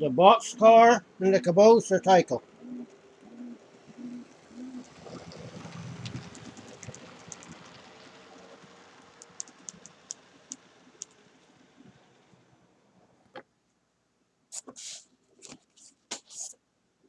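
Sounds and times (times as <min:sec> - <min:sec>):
model train wheels clicking: 0:06.1 - 0:11.2.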